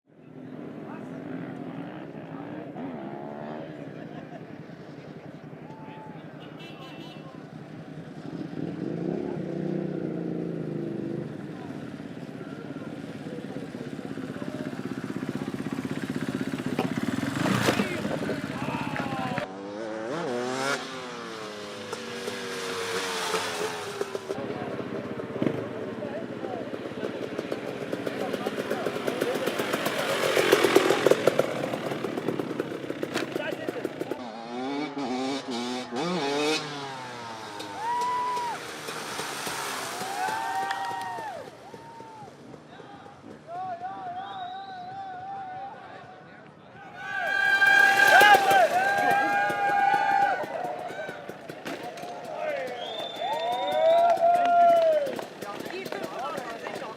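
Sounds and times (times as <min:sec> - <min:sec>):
dirt bike engine running: 0:06.3 - 0:42.6, 0:47.0 - 0:56.9.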